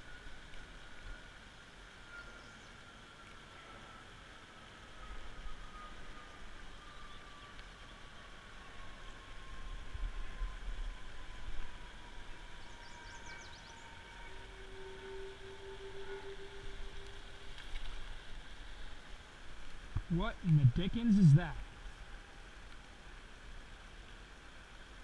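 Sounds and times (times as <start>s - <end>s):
distant engine hum: 1.8s - 23.4s
faint bird chirps: 2.0s - 3.0s, 5.0s - 8.4s, 12.2s - 17.8s.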